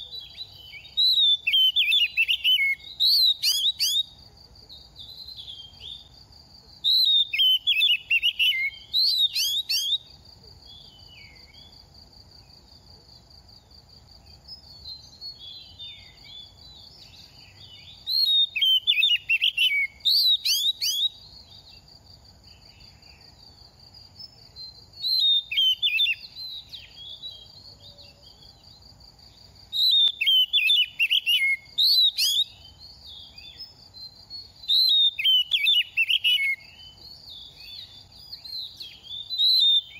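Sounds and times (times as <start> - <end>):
bird singing whistled phrases: 0.0 - 4.1, 6.8 - 10.1, 14.9 - 21.2, 25.0 - 27.6, 29.7 - 39.9.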